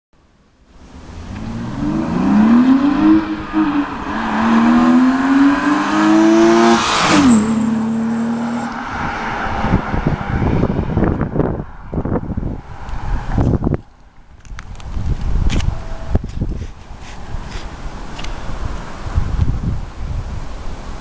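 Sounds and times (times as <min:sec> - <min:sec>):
car engine revving hard: 0:00.9 - 0:11.0.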